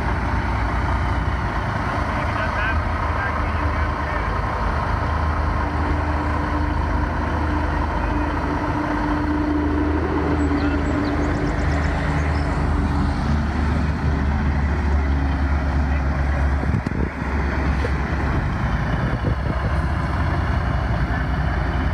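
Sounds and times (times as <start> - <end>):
heavy engine droning: 0.0 - 21.9.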